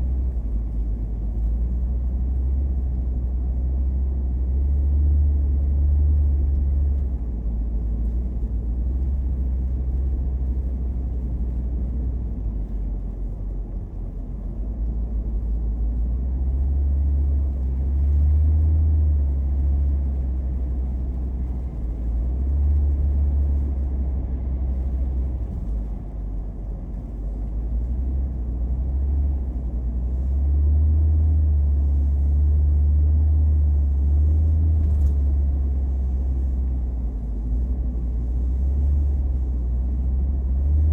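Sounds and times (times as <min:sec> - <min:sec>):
car road rumble from cabin: 0:00.0 - 0:40.9.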